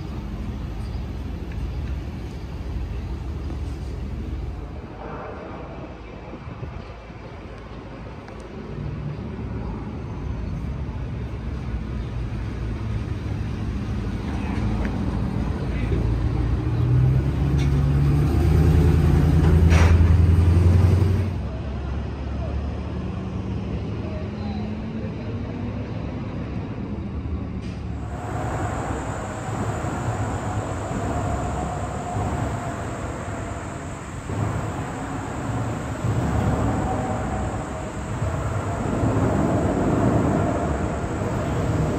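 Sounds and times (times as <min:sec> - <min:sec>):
road traffic rumble: 0:00.0 - 0:41.9
steady high tone: 0:28.0 - 0:41.9.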